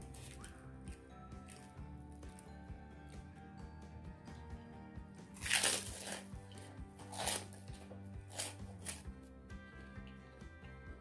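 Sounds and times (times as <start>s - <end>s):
background music: 0.0s - 11.0s
wet chewing and smacking: 5.3s - 9.1s.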